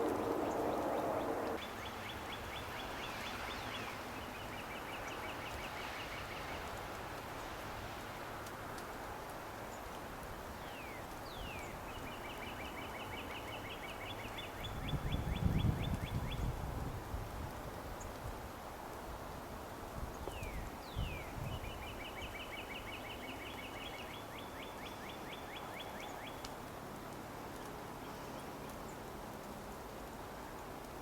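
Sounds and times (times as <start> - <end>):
steady outdoor hiss: 0.0 - 31.0.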